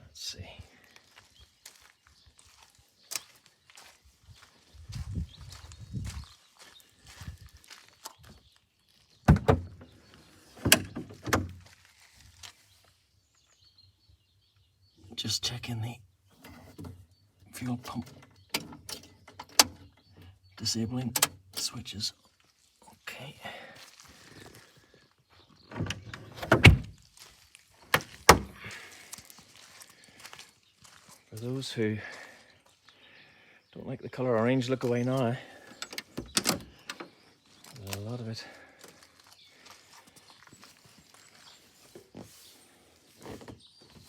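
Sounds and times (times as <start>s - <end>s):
clunks and knocks on car: 9.3s - 9.7s, 25.7s - 26.9s.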